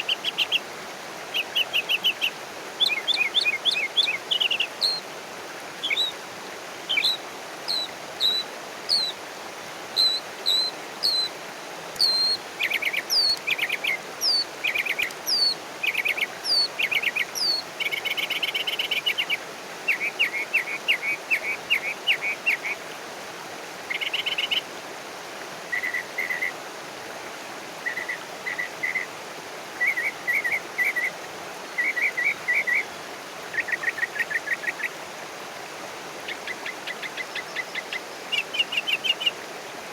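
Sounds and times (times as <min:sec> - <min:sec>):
steady outdoor hiss: 0:00.0 - 0:39.9.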